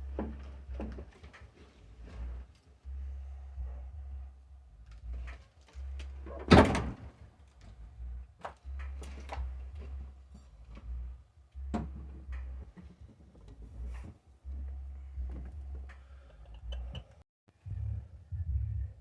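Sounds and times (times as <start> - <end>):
low hum: 1.9 - 6.8, 7.6 - 19.0.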